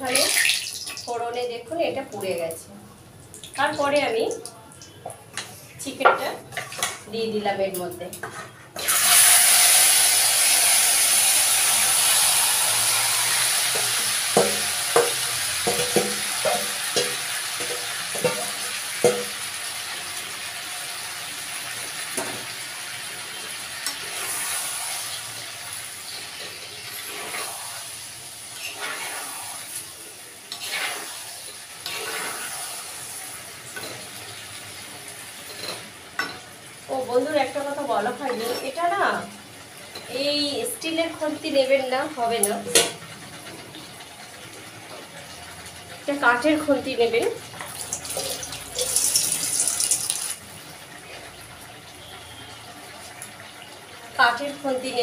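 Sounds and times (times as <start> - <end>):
chicken sizzling in oil: 8.8 - 55.0
spatula scraping pot: 26.3 - 27.8, 28.5 - 29.8, 30.5 - 32.9.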